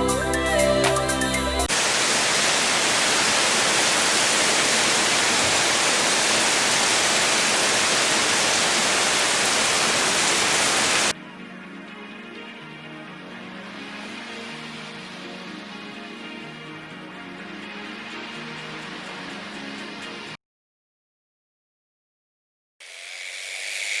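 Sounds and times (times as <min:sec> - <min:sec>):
quiet music: 0:00.0 - 0:01.7, 0:11.1 - 0:20.4
loud steady hiss: 0:00.0 - 0:11.1.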